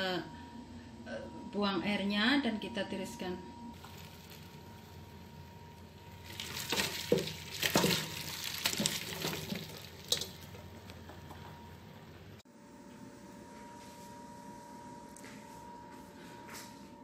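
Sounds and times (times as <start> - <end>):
water pouring into a strainer: 6.2 - 10.6
potatoes knocking: 6.2 - 11.3.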